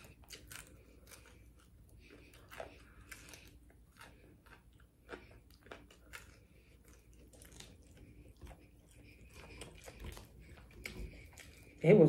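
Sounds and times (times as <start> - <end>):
sharp crunches of breading: 0.0 - 11.6
person chewing crispy food: 0.0 - 12.0.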